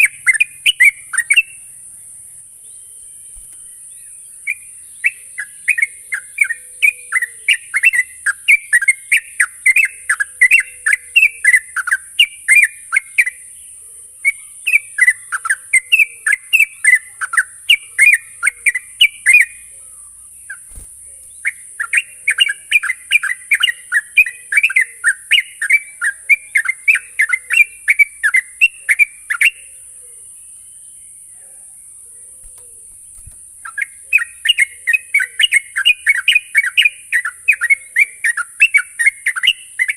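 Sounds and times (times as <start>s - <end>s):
bird chattering song: 0.0s - 39.9s
steady high hiss: 19.6s - 21.8s.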